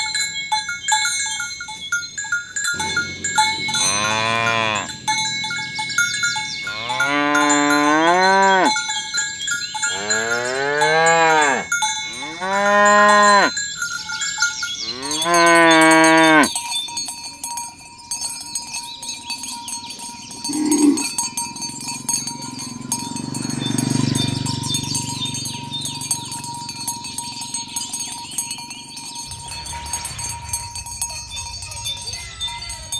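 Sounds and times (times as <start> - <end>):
cattle mooing: 2.8 - 5.0, 6.7 - 8.7, 9.9 - 13.5, 14.8 - 16.5, 20.5 - 21.1.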